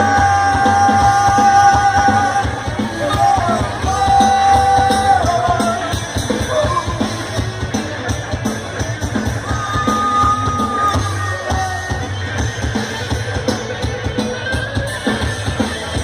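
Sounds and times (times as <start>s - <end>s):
drum-kit beat: 0.0s - 16.0s.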